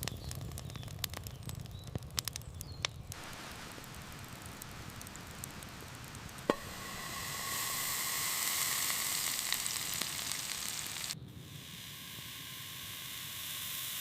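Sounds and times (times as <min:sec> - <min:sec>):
food sizzling in a pan: 0:03.1 - 0:14.0.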